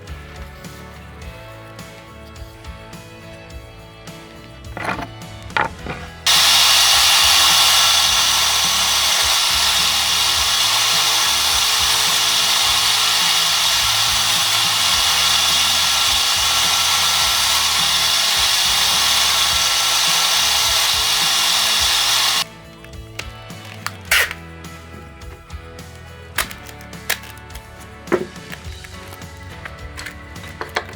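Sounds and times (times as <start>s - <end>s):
power tool grinding: 4.4s - 22.5s.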